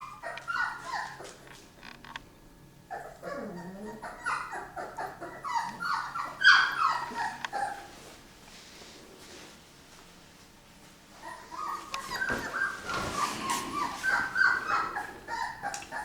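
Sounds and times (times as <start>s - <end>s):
dog whining and yelping: 0.0s - 1.5s, 2.9s - 7.9s, 11.2s - 16.0s.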